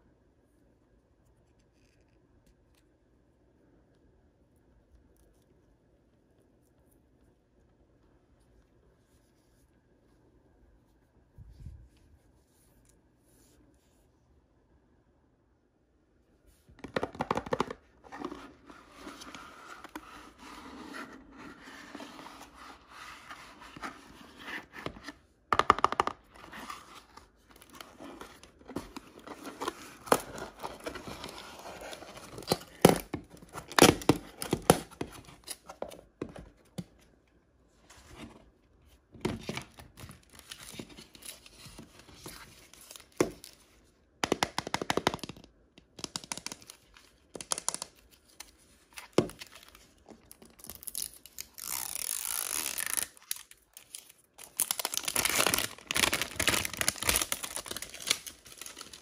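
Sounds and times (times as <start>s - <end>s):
packaging crinkling: 49.1s - 59.0s
packaging ripping: 50.5s - 59.0s.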